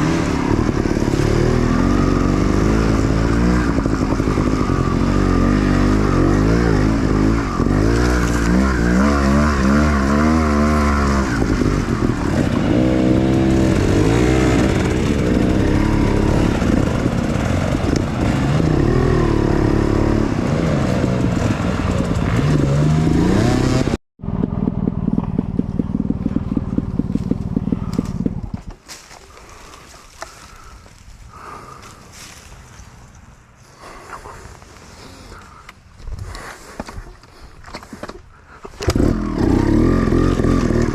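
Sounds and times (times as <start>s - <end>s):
dirt bike engine revving: 0.0s - 28.6s, 38.8s - 40.9s
engine with rapid pulses: 0.0s - 28.8s, 38.0s - 40.9s.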